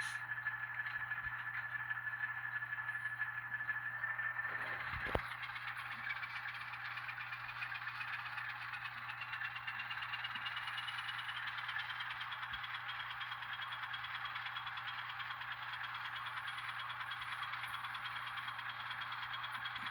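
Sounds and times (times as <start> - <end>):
thin rising whine: 0.0 - 12.2
model train diesel engine sound: 0.0 - 19.9.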